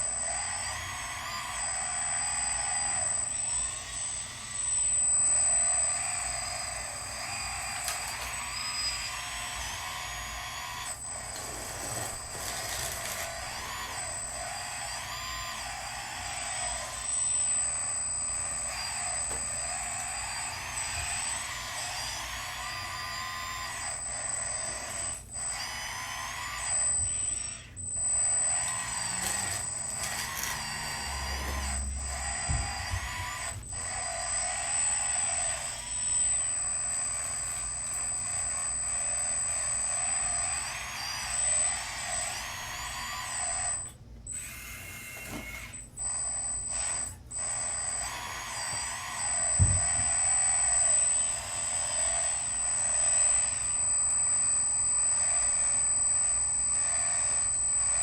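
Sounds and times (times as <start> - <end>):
electric motors whining: 0.0 - 58.0.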